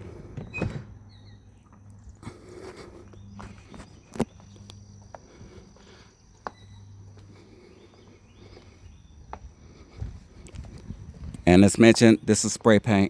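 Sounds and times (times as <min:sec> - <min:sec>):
footsteps outdoors: 0:00.0 - 0:13.0.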